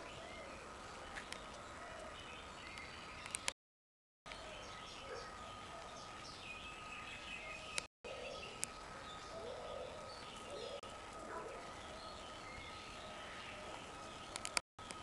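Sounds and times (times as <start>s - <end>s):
birds chirping and calling: 4.3s - 14.6s
sharp clicks: 14.3s - 15.0s.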